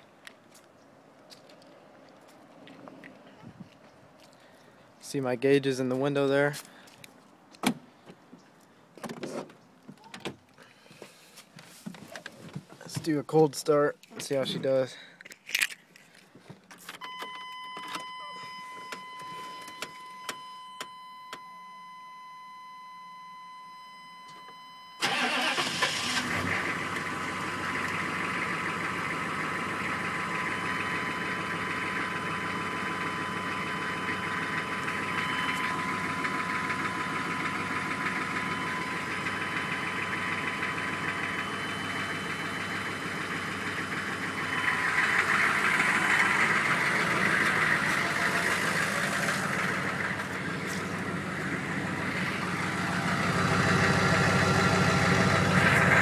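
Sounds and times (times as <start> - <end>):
diesel engine cranking and starting: 24.6 - 56.0
diesel engine idling: 25.0 - 56.0.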